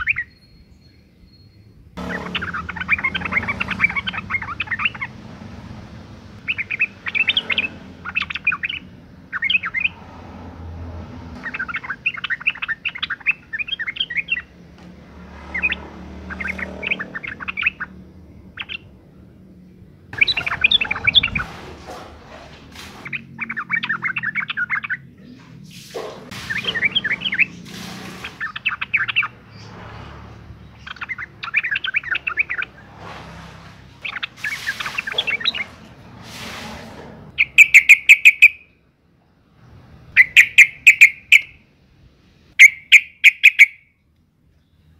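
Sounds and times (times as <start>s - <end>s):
bulbul scratchy chattering calls: 2.0s - 5.2s, 6.4s - 10.0s, 11.4s - 14.6s, 15.5s - 19.0s, 20.1s - 21.5s, 22.8s - 25.1s, 26.3s - 29.8s, 30.5s - 33.0s, 34.0s - 35.8s, 37.3s - 38.7s, 40.2s - 41.6s, 42.6s - 43.8s.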